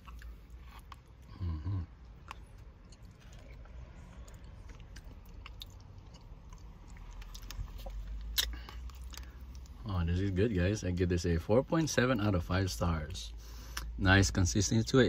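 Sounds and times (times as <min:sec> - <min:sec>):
person chewing: 0:00.0 - 0:09.8.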